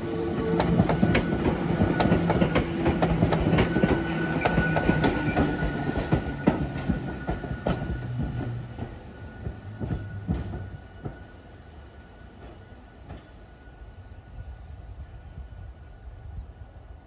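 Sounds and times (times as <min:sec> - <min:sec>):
train wheels clicking over rail joints: 0:00.3 - 0:11.5, 0:12.3 - 0:13.5.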